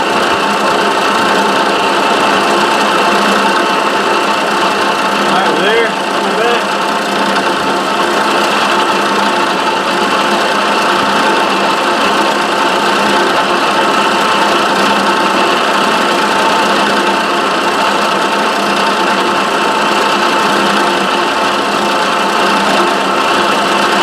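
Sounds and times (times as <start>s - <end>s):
machine whine: 0.0s - 24.0s
milling machine humming: 0.0s - 24.0s.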